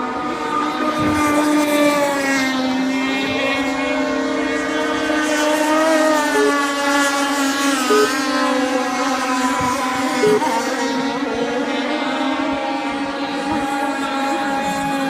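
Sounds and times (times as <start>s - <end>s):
racing boat motors whining: 0.0s - 15.0s.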